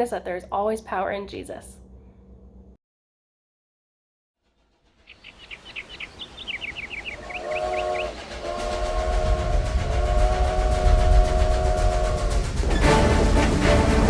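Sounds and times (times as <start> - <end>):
train whistle chord: 7.2 - 14.0.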